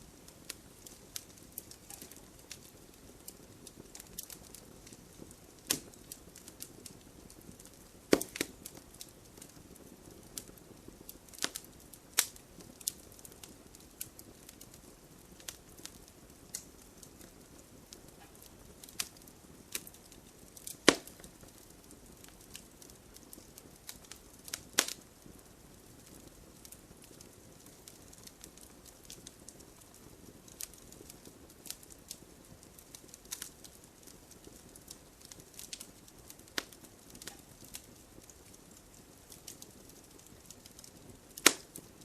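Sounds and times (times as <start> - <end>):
sharp pops of fire: 0.0 - 42.0
soft steady hiss: 0.0 - 42.0
wood fire crackling: 0.0 - 42.0.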